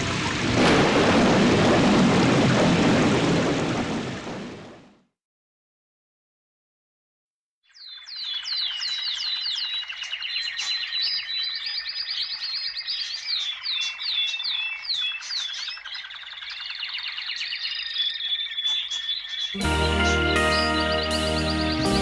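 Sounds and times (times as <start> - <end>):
songbirds singing: 7.7 - 22.0.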